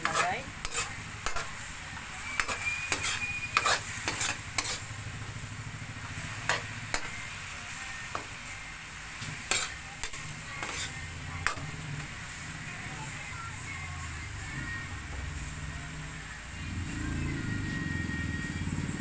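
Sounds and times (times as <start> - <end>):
metal spoon scraping a pan: 0.0 - 5.0, 6.1 - 7.3, 9.2 - 12.1
meat sizzling in a wok: 0.0 - 19.0.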